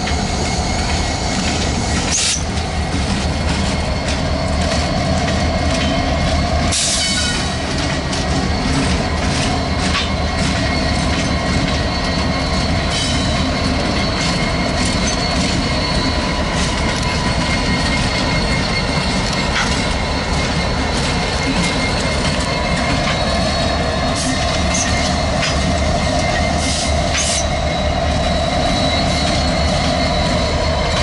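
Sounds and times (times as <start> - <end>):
train wheels rumbling on rails: 0.0 - 31.0
thin wheel squeal: 6.7 - 31.0.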